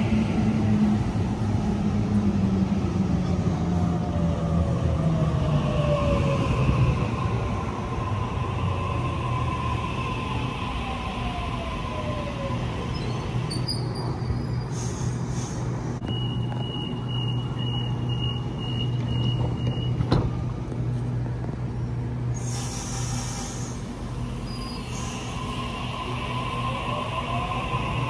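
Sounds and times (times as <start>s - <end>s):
hiss: 22.4s - 23.8s.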